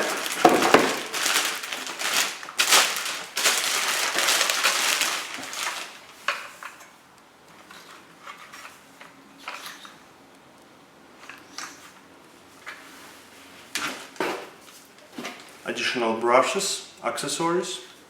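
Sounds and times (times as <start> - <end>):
cardboard rustling: 0.0 - 6.5
plastic wrapping crinkling: 0.0 - 6.7.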